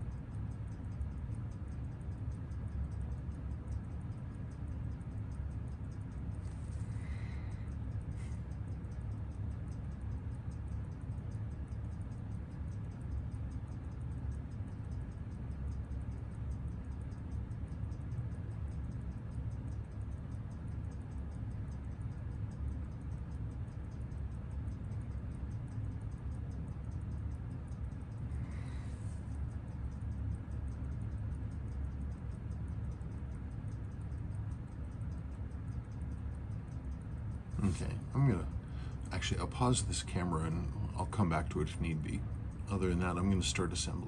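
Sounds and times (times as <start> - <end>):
steady low hum: 0.0 - 44.0
watch ticking rapidly: 0.0 - 44.0.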